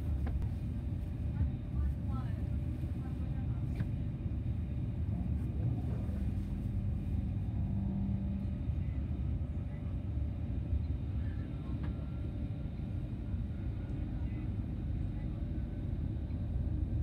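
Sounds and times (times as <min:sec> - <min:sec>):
train running gear rumble: 0:00.0 - 0:17.0.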